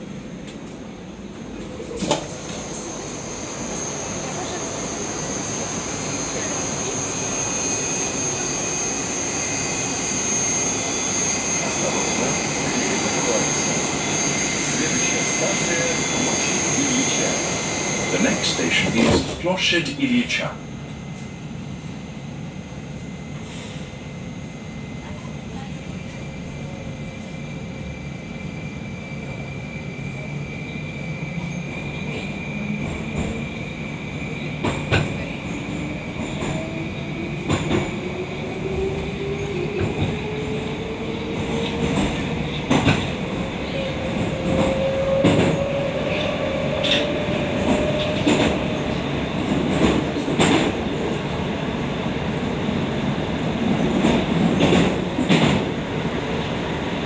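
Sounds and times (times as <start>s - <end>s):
traction motor whine rising: 2.3s - 19.2s
train running gear rumble: 31.4s - 57.0s.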